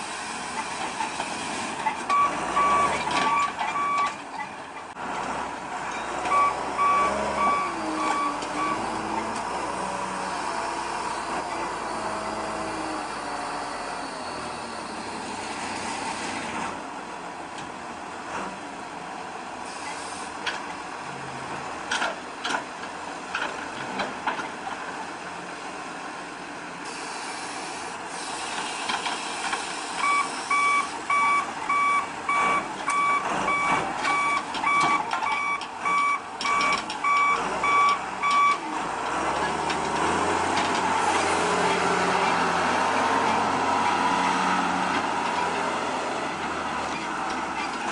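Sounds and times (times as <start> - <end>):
reversing alarm beeping: 2.1 - 4.2, 6.3 - 8.9, 30.0 - 38.6.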